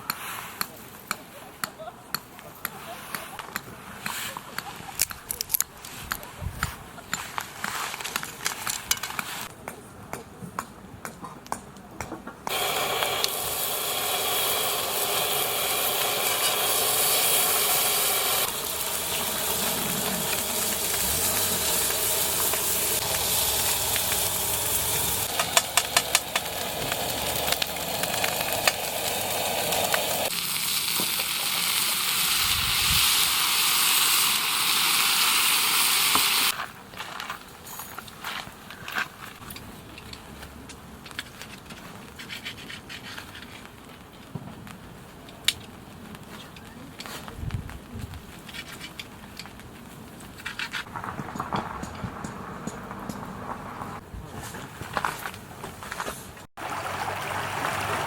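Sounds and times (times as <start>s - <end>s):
food sizzling in a frying pan: 12.5s - 36.6s.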